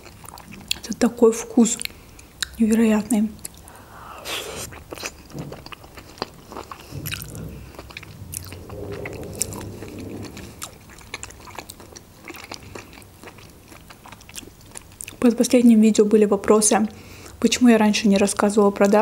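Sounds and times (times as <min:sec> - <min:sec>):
wet chewing: 0:03.4 - 0:15.2.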